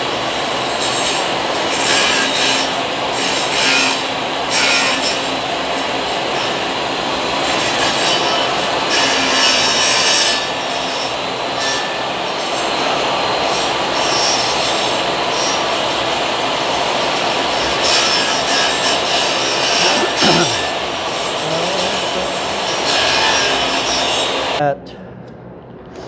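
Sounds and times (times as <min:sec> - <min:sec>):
power tool cutting wood: 0:00.8 - 0:06.8, 0:07.4 - 0:11.9, 0:13.5 - 0:15.7, 0:17.1 - 0:24.6.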